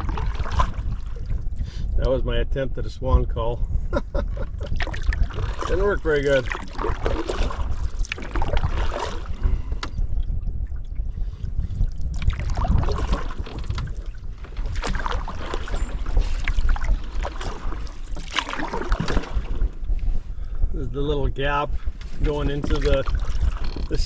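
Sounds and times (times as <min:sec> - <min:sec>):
paddle splashing through water: 0:00.0 - 0:01.6, 0:04.5 - 0:20.2, 0:22.0 - 0:24.0
wind on microphone: 0:00.0 - 0:24.0.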